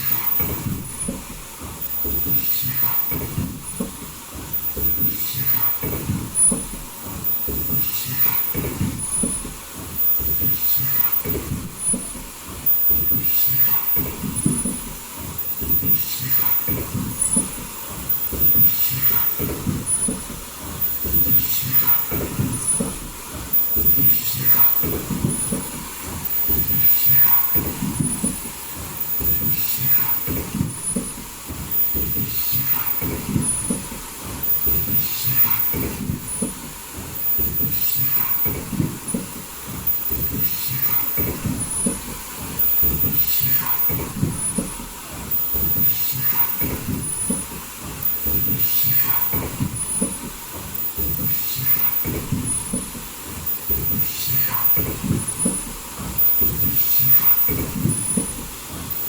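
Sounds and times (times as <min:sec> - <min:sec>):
high-pitched machine whine: 0:00.0 - 0:59.0
machine clatter and rumble: 0:00.0 - 0:59.0.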